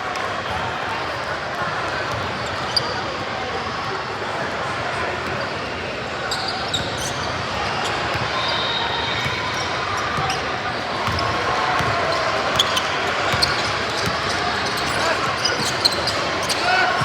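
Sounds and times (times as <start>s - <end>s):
crowd chatter in large hall: 0.0s - 17.0s
short high shoe squeaks: 12.6s - 16.8s.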